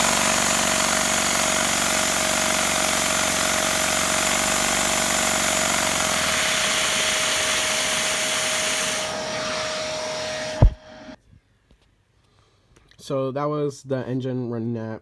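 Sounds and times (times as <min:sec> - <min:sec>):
engine pistons clattering: 0:00.0 - 0:08.7
vacuum cleaner whine and hiss: 0:06.0 - 0:11.2.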